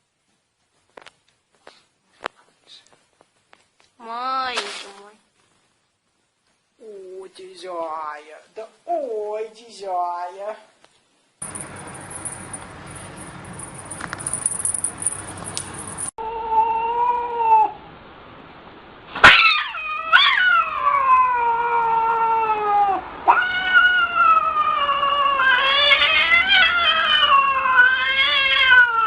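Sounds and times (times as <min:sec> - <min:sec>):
cat yowling: 0:16.2 - 0:17.8, 0:19.2 - 0:29.0.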